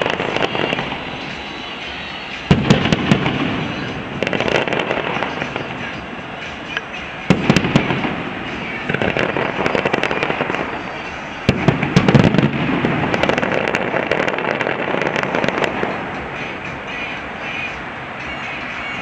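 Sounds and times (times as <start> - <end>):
firework crackle: 0.0 - 19.0
firework shells bursting: 2.5 - 6.0, 6.7 - 10.8, 11.4 - 16.2.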